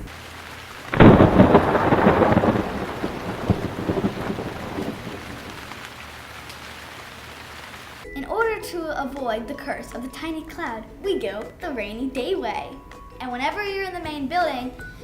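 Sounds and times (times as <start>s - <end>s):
rain hiss: 0.0s - 8.0s
thunder clap rolling: 0.1s - 8.0s.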